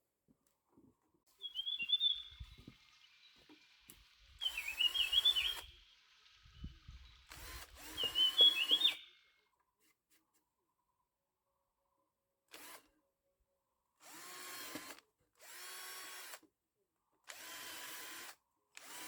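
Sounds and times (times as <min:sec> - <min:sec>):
songbird warbling: 0:01.4 - 0:07.2, 0:07.8 - 0:09.3.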